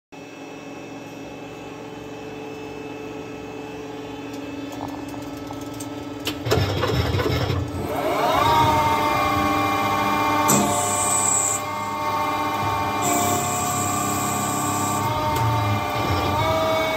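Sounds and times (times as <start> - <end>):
loud rough machining noise: 6.4 - 16.9
lathe machine hum: 7.7 - 16.9.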